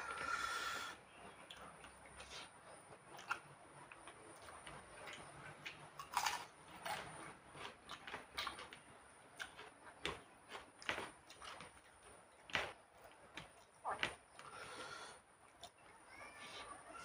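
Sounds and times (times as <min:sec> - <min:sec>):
chewing food: 0:01.1 - 0:14.6.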